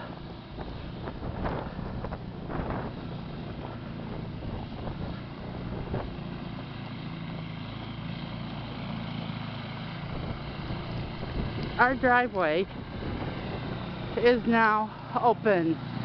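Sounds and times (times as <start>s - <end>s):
engine drone: 0.0s - 16.0s
wind on microphone: 0.5s - 6.2s, 10.1s - 14.4s.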